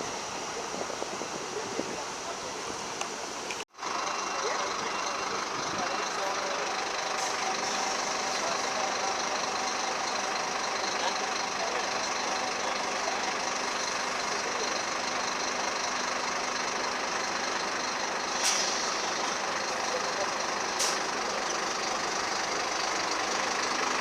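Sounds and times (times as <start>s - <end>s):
background hubbub: 0.0s - 24.0s
bus engine idling: 0.0s - 24.0s.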